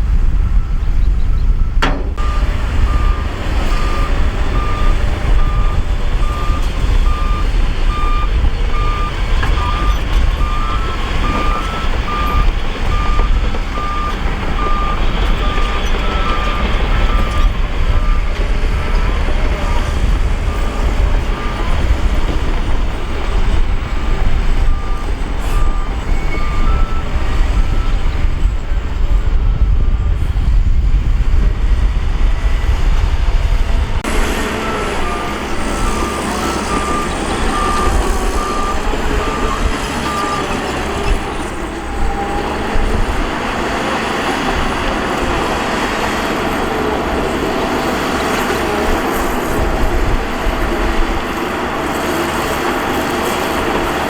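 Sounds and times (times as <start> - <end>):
heavy diesel machinery engines: 0.0 - 54.0
reversing alarm beeping: 0.4 - 22.3, 23.4 - 28.0, 34.1 - 43.2.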